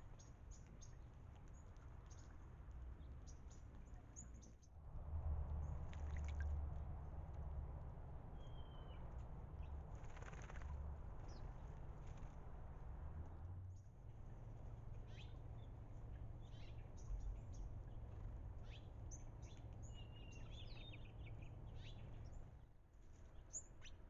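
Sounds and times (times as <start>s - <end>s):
small birds chirping: 0.0s - 4.7s, 8.4s - 12.4s, 14.9s - 22.4s
low rumble: 4.7s - 21.6s.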